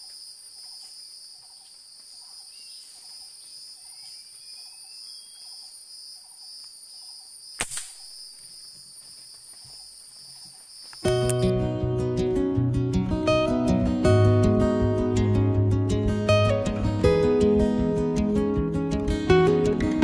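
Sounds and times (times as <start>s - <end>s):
insect chorus: 0.0s - 11.5s
sharp crack: 7.6s - 8.2s.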